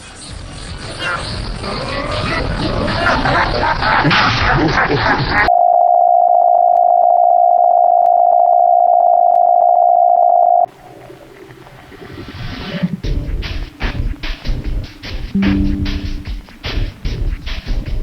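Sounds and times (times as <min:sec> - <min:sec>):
music: 0:13.1 - 0:18.0
electronic beep tone: 0:15.4 - 0:16.6.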